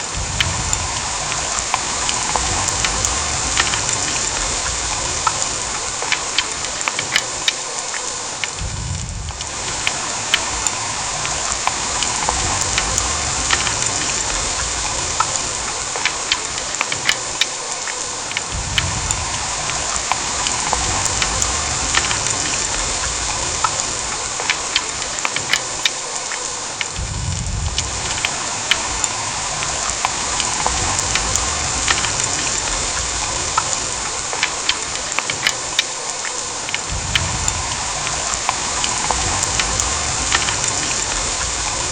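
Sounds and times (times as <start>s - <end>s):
heavy rain pouring: 0.0s - 41.9s
drops ticking on hard surface: 0.2s - 7.6s, 9.3s - 27.1s, 27.7s - 41.5s
low rumble: 8.6s - 15.7s, 27.0s - 34.1s.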